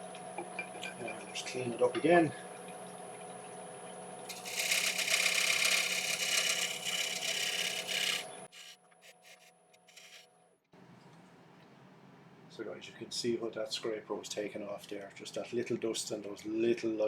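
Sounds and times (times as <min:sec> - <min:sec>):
lathe humming: 0:04.3 - 0:10.2
scraper cutting wood: 0:04.3 - 0:10.3.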